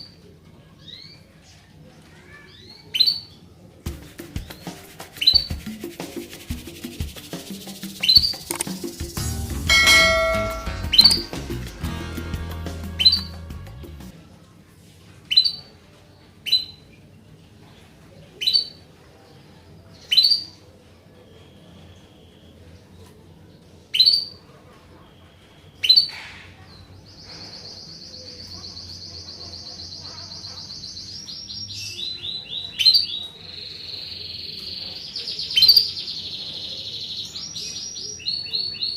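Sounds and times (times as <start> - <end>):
canary chirping: 2.4 - 3.4, 4.4 - 5.6, 7.8 - 11.9, 12.8 - 13.6, 26.8 - 38.9
music with wood-block beat: 3.8 - 14.1.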